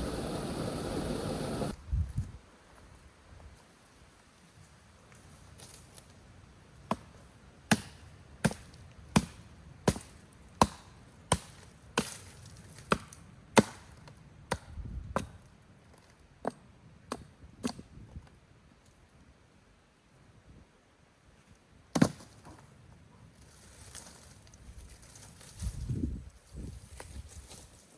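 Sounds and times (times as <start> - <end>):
axe chopping firewood: 7.7 - 12.2, 12.8 - 15.4, 21.9 - 22.3.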